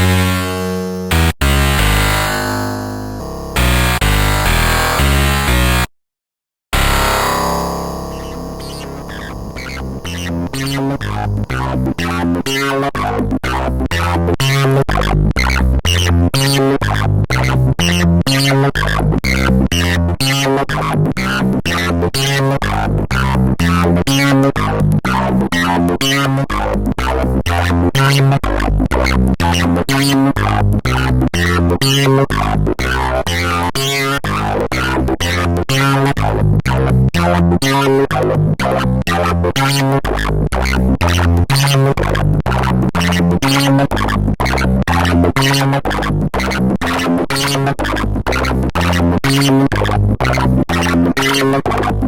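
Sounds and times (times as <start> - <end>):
synthesizer bass line: 0.0 - 5.9, 6.8 - 12.4
synthesizer plucked notes: 0.0 - 5.9, 6.8 - 13.1.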